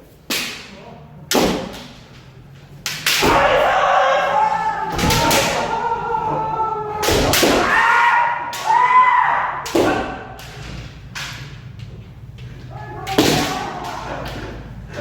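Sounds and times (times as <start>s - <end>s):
bamboo sword strikes: 0.3s - 0.7s, 1.3s - 1.9s, 2.9s - 3.6s, 7.0s - 7.8s, 13.1s - 13.8s
people shouting: 3.1s - 10.6s, 12.6s - 15.0s.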